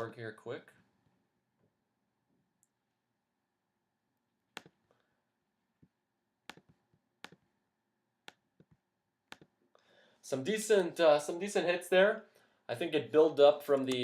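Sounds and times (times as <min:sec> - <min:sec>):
mouse and keyboard clicks: 0:06.5 - 0:07.4, 0:08.2 - 0:09.6.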